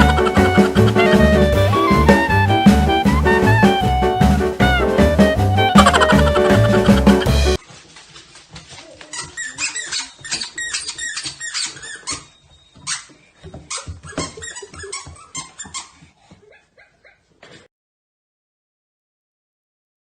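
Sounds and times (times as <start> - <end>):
dog whining and yipping: 9.0 - 17.6.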